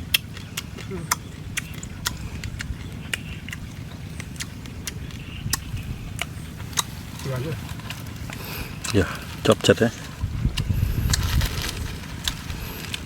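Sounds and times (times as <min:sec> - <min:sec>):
wind rumble on microphone: 0:00.0 - 0:13.0
crab shell crunching in mouth: 0:00.1 - 0:07.0.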